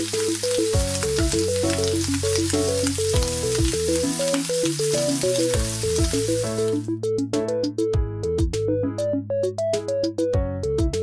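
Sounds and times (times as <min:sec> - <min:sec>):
food sizzling in frying pan: 0:00.0 - 0:06.9
background music: 0:00.0 - 0:11.0.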